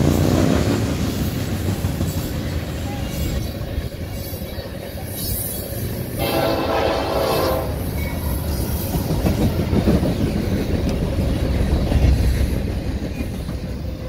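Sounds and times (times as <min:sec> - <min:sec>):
train horn: 0:06.2 - 0:07.9.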